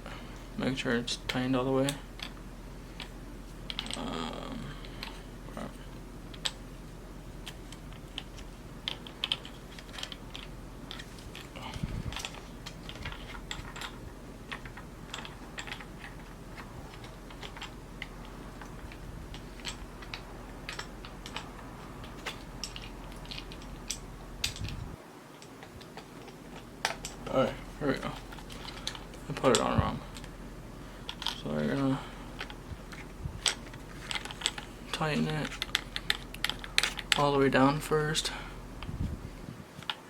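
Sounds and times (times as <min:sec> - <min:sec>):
steady low hum: 0:00.0 - 0:40.0
plastic parts clicking and tapping: 0:07.4 - 0:24.8, 0:32.3 - 0:37.3.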